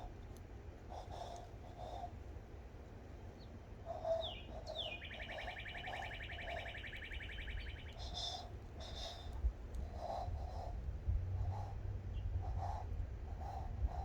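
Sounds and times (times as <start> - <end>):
bird-like whistles and trill: 4.0 - 9.2.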